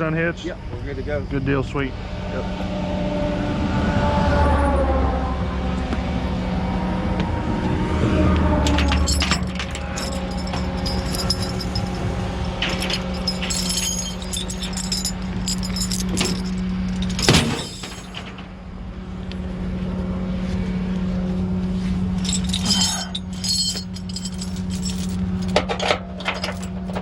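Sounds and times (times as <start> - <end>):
vehicle engine idling: 4.6 - 27.0
metallic clinks and clanks: 8.6 - 18.5, 22.2 - 27.0.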